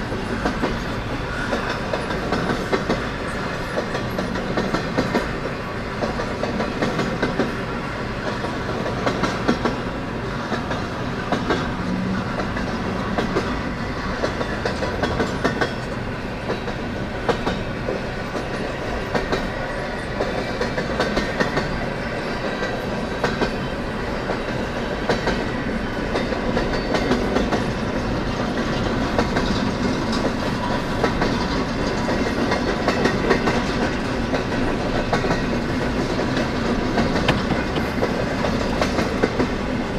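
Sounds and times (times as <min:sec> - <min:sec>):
freight train rumble: 0:00.0 - 0:39.9
train wheels clattering on rails: 0:00.0 - 0:39.9.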